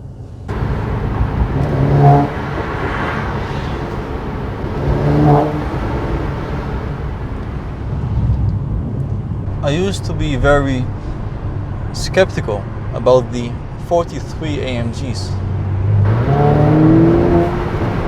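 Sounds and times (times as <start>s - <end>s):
car engine accelerating hard: 0.5s - 12.0s, 15.4s - 18.0s.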